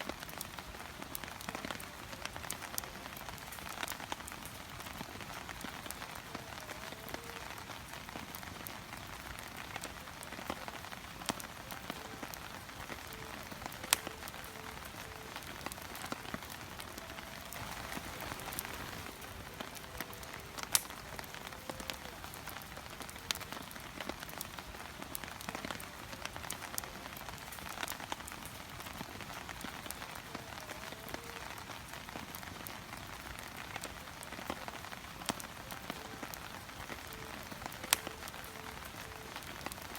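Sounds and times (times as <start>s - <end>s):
fire hissing: 0.0s - 39.9s
fire popping: 0.0s - 39.9s.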